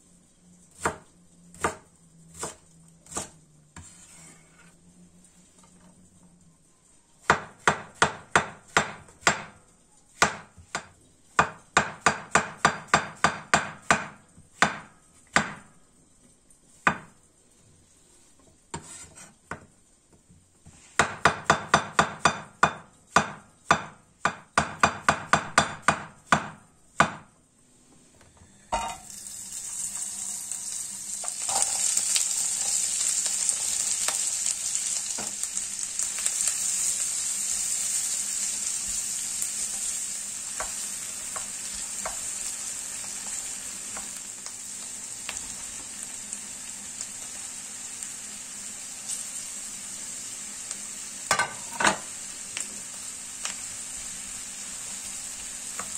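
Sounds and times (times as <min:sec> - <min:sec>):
sizzling in hot pan: 0:28.6 - 0:55.9.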